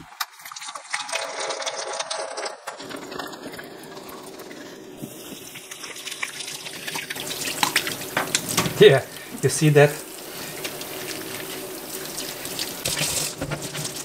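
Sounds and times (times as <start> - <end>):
tap water running into sink: 5.0 - 14.0
small knocks and splashes: 5.5 - 8.9.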